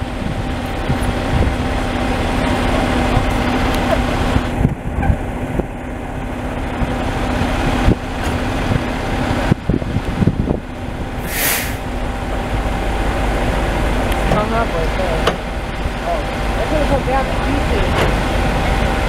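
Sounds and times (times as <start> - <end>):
heavy truck engine running: 0.0 - 19.0
air release hiss: 11.2 - 11.9.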